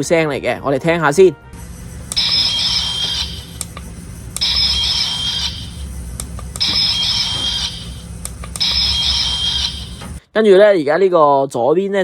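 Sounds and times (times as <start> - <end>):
toy electronic squeal: 2.1 - 3.7, 4.4 - 5.9, 6.6 - 10.1.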